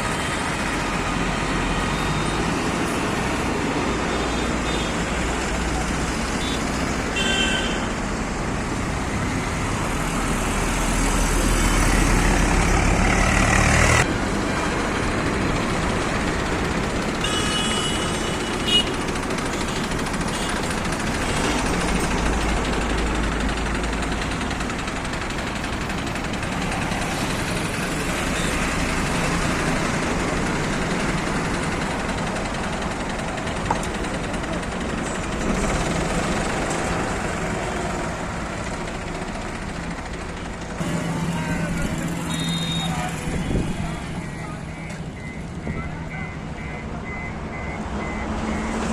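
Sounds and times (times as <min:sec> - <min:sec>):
heavy diesel engines rumbling: 0:00.0 - 0:48.9.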